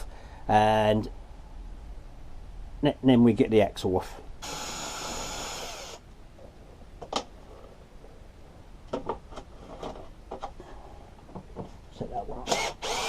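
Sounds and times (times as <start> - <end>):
electric screwdriver running: 4.4 - 6.0, 12.5 - 13.0.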